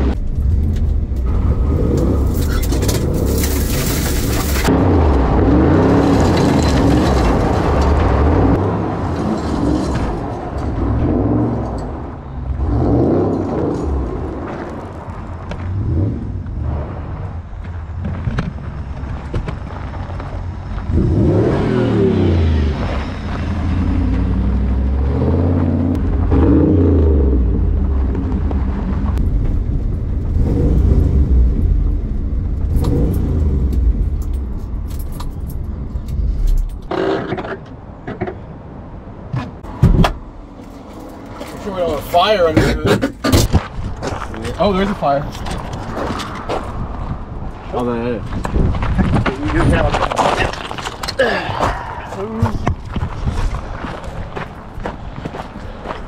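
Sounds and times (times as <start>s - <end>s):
wheels spinning on gravel: 0.8s - 4.7s
car engine revving hard: 20.9s - 23.0s, 23.6s - 27.9s, 30.3s - 31.8s.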